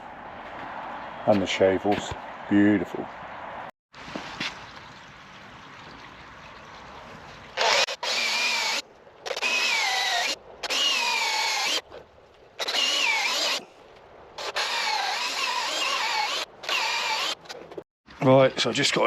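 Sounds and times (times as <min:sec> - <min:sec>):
chisel cutting wood on lathe: 0:14.4 - 0:17.6.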